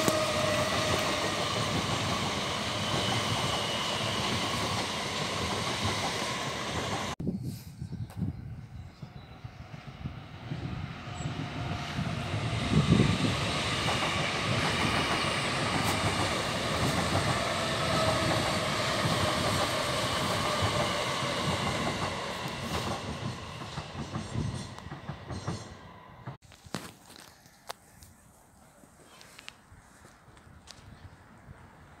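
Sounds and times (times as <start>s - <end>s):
train wheels clickety-clack: 0.0s - 7.2s, 11.3s - 26.4s.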